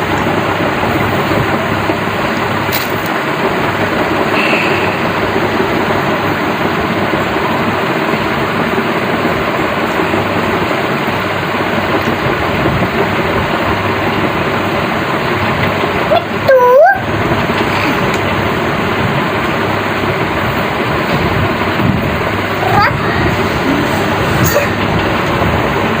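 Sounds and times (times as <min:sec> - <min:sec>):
loud machine running noise: 0:00.0 - 0:26.0
short pitch-bending call: 0:04.4 - 0:05.3.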